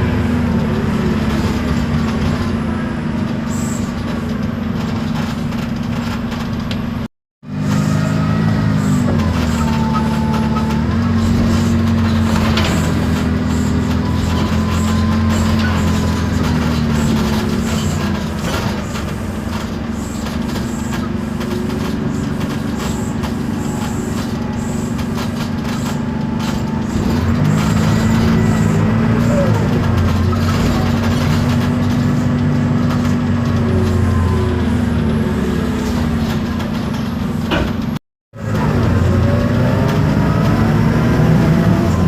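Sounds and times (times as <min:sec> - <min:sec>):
bus diesel engine drone: 0:00.0 - 0:42.0
faint drivetrain whine: 0:00.0 - 0:42.0.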